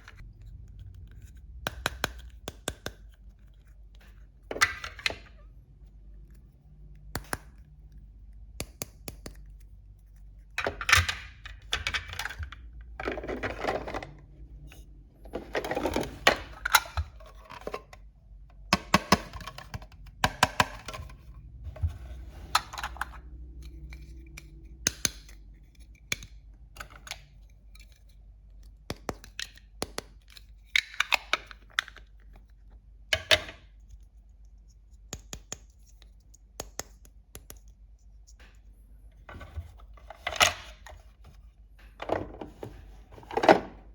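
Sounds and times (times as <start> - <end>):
plastic toy pieces clattering: 10.6 - 14.2.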